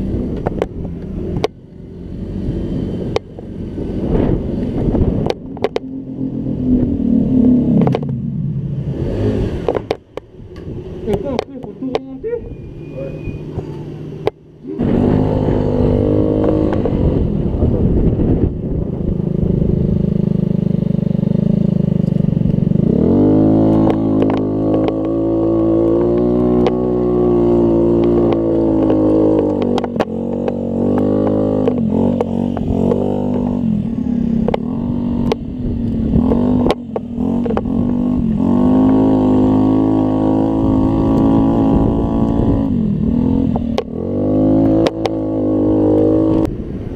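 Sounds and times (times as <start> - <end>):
scooter engine revving: 10.9 - 17.9, 19.1 - 46.7.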